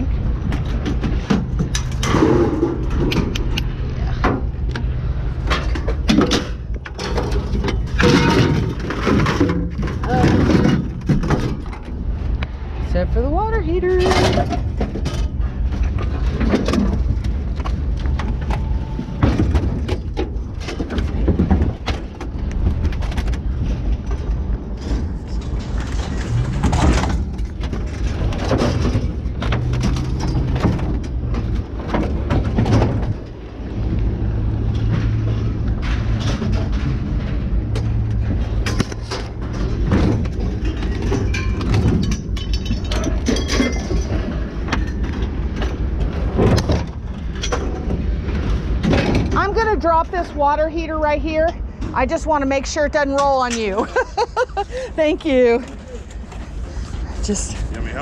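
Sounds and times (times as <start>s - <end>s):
low engine hum: 0.0s - 58.0s
scrap metal clanking: 5.4s - 12.1s.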